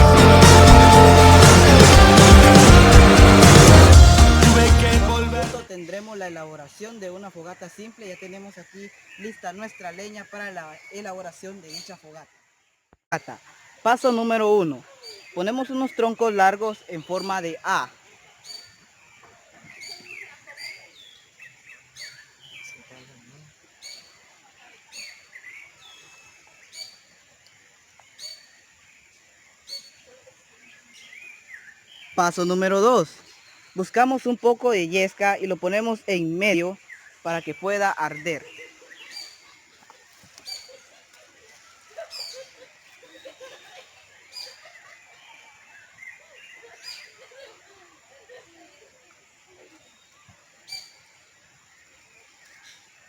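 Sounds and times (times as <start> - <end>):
fainter lower bird calls: 6.0 - 12.5, 13.2 - 53.0
birds chirping and whistling: 37.4 - 39.5, 42.1 - 42.6.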